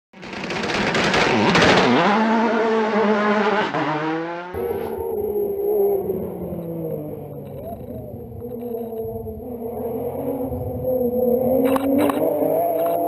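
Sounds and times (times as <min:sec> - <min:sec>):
rally car engine accelerating: 0:00.2 - 0:13.0
high-pitched whine: 0:04.6 - 0:13.0.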